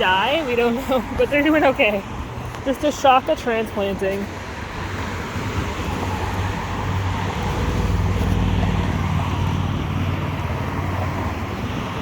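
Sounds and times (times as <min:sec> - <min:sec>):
vehicle passing: 0:00.0 - 0:12.0.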